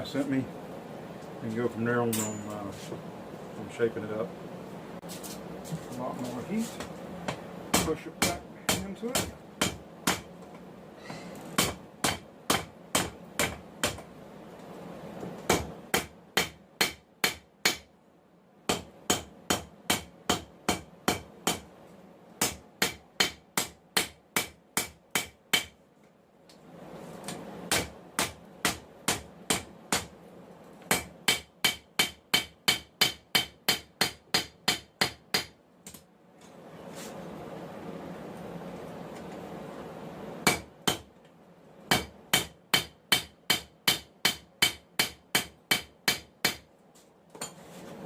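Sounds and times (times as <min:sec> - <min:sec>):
hammer striking steel on anvil: 0:02.1 - 0:02.6, 0:30.9 - 0:35.5, 0:41.9 - 0:46.6.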